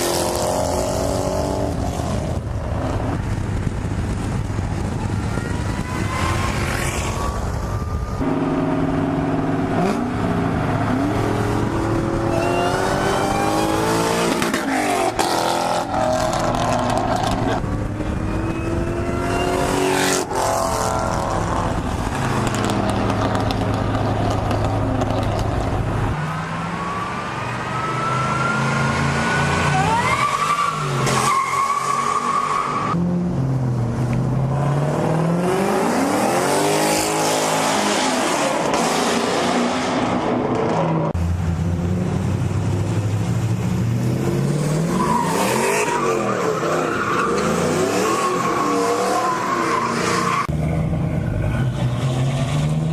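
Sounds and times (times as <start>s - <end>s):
car engines revving: 0.0s - 52.9s
tires squealing: 5.3s - 7.9s, 26.6s - 33.0s, 44.8s - 50.5s.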